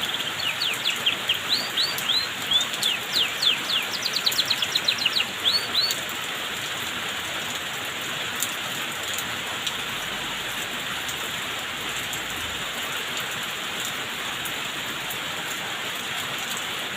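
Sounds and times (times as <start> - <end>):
canary chirping: 0.0 - 6.0.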